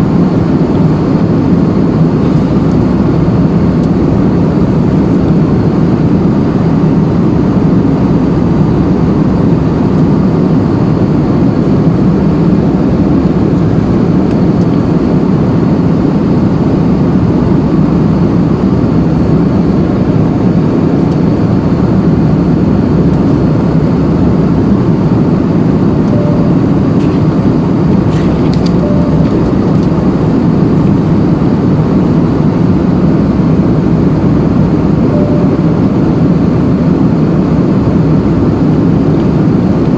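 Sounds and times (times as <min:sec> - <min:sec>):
vehicle interior rumble: 0:00.0 - 0:06.2, 0:11.0 - 0:15.8, 0:18.1 - 0:39.9
faint short beeps: 0:26.0 - 0:27.5, 0:28.1 - 0:30.0, 0:35.1 - 0:35.8.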